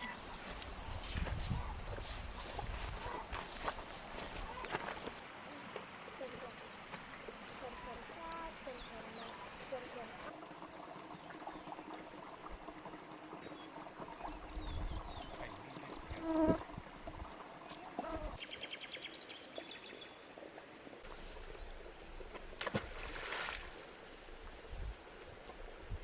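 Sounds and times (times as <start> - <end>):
insects chirping: 0.0 - 19.2, 21.0 - 26.0
rapid high insect trill: 4.4 - 18.4, 21.0 - 26.0.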